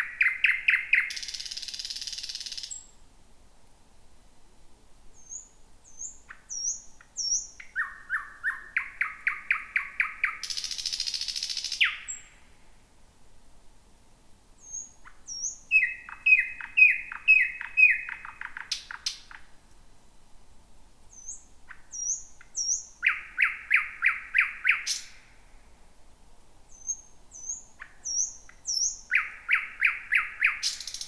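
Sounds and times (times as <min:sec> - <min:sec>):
bird singing whistled notes: 0:00.0 - 0:02.9, 0:05.2 - 0:12.4, 0:14.6 - 0:19.4, 0:21.1 - 0:25.3, 0:26.7 - 0:31.0.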